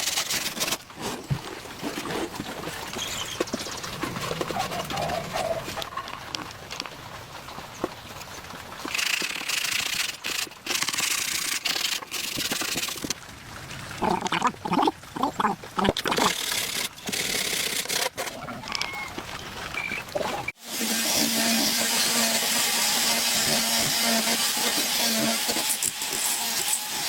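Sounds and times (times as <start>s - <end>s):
wood scraping by hand: 0.0s - 6.8s.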